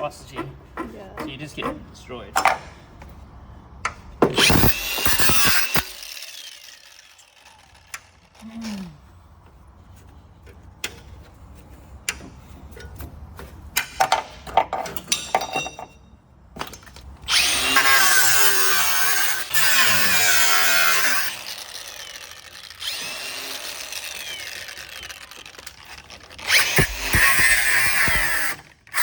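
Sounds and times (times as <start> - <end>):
power tool on sheet metal: 4.4 - 8.5, 17.2 - 29.0
metal knocks and clinks: 15.0 - 16.1.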